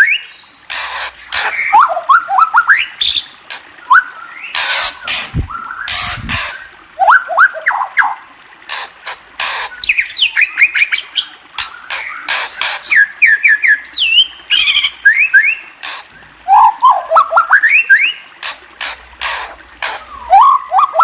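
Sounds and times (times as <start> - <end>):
bird harsh squawks: 0.0 - 21.0.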